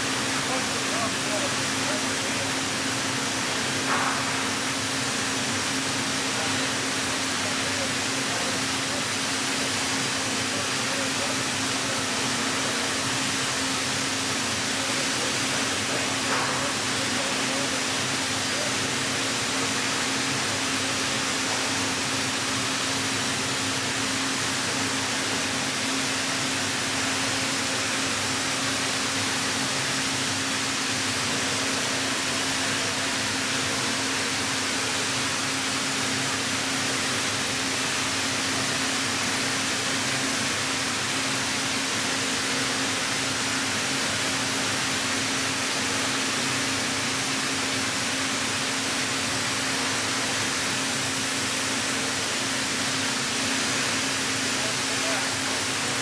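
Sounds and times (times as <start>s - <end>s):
hydraulic machine hiss and hum: 0.0s - 56.0s.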